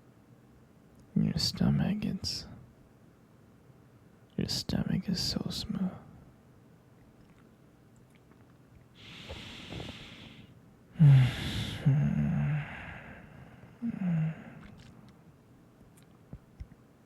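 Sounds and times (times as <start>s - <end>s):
man humming: 9.0s - 10.4s, 11.0s - 14.9s
man breathing: 9.0s - 14.9s.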